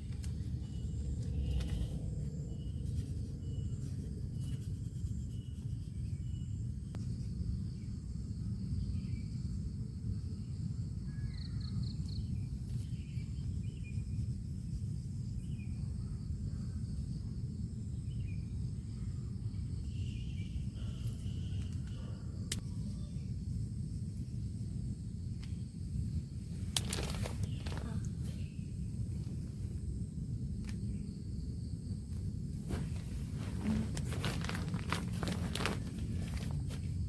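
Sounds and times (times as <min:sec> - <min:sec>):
faint high bird chirps: 0:11.0 - 0:14.1
low forest rush: 0:25.5 - 0:37.0.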